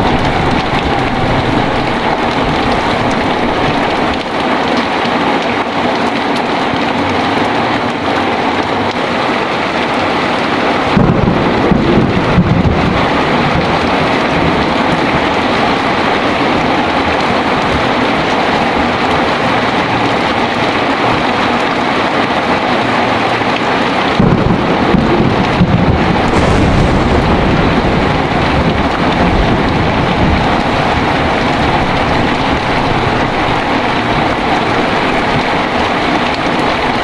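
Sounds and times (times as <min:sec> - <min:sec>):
deep thunder roll: 0:00.0 - 0:04.5, 0:10.8 - 0:19.7, 0:24.1 - 0:37.0
heavy rain pouring: 0:00.0 - 0:37.0.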